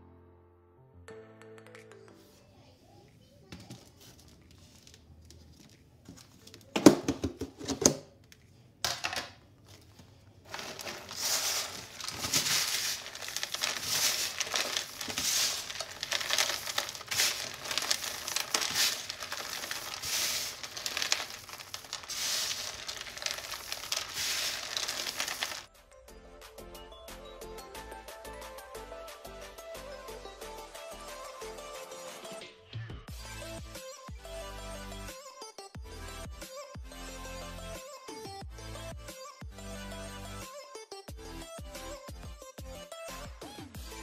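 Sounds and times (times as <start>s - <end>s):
shredded cheese rustling: 10.4s - 25.7s.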